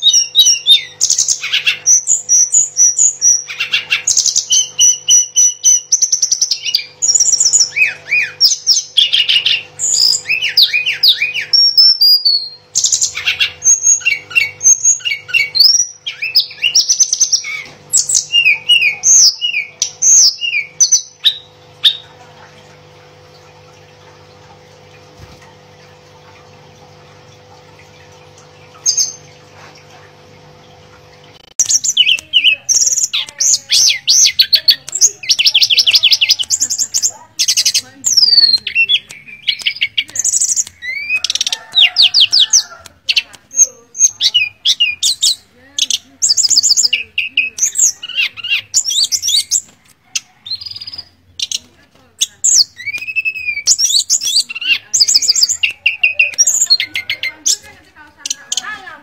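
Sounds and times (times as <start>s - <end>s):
bird song trills and whistles: 0.0s - 22.2s, 31.6s - 49.8s, 52.2s - 58.8s
faint steady hum: 0.0s - 59.0s.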